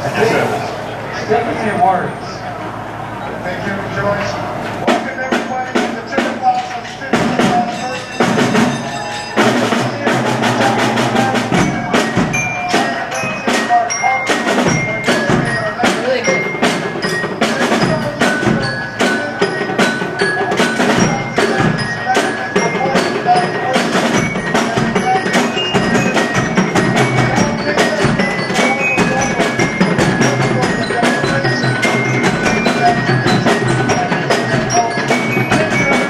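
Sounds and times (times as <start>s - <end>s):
parade drums playing march beat: 3.8s - 36.0s
ringing bell-like metallic tones: 4.9s - 36.0s.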